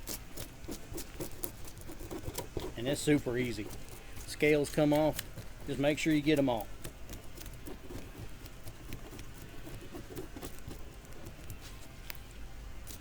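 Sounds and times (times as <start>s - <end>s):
knife scraping fish scales: 0.0s - 11.6s.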